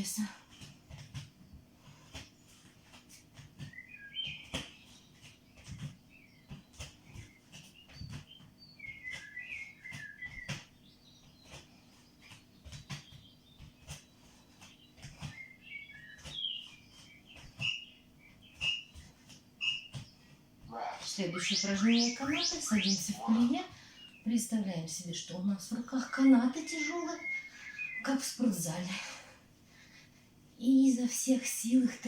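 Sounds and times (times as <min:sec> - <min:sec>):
footsteps on floor: 0:00.5 - 0:22.9
small bird chirping: 0:03.6 - 0:24.3.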